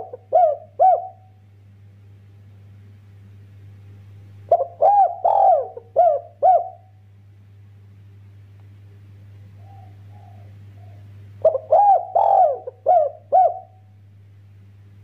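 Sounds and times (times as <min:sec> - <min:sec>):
dove cooing: 0:00.0 - 0:01.3, 0:04.5 - 0:07.0, 0:09.6 - 0:13.9
steady low hum: 0:00.0 - 0:15.0.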